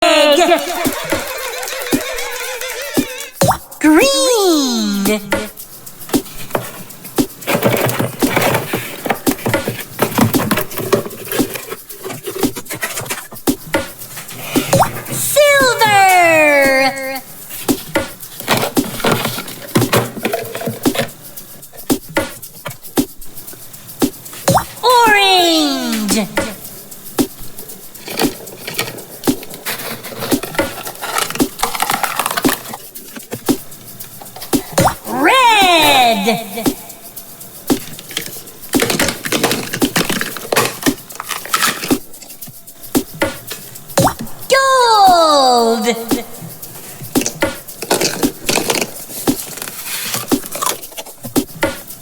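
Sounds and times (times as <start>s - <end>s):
hard objects clicking and knocking: 5.4s - 15.2s, 17.7s - 24.8s, 26.4s - 35.1s, 37.7s - 44.4s, 46.2s - 52.0s
rustling: 26.5s - 34.8s, 46.3s - 52.0s.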